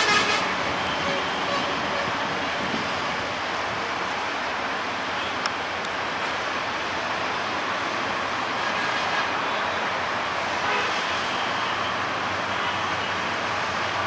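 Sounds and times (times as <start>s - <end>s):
train wheels on rails: 0.0s - 10.4s.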